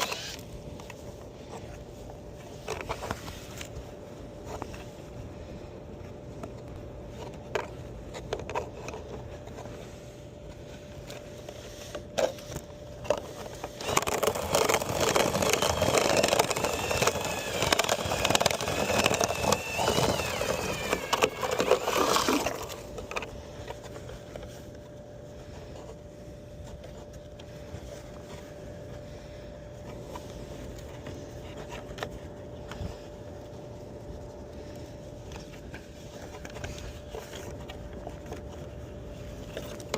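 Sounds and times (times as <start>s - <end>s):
faint steady hum: 0.0s - 39.9s
vent cleaning machine whirring: 9.9s - 23.7s.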